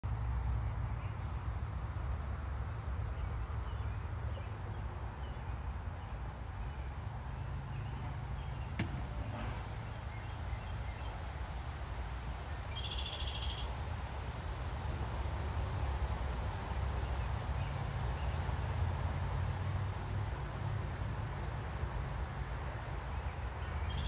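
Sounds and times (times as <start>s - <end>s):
bird call: 12.7s - 13.7s.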